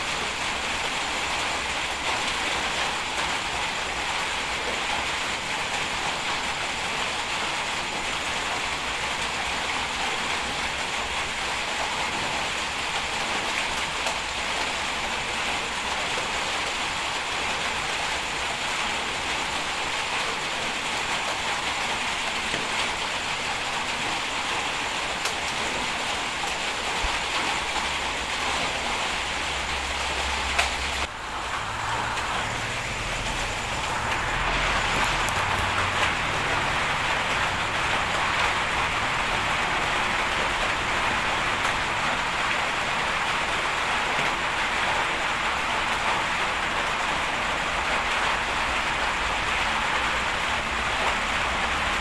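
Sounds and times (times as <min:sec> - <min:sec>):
constant hiss: 0:00.0 - 0:52.0
bulldozer engine droning: 0:29.7 - 0:41.3.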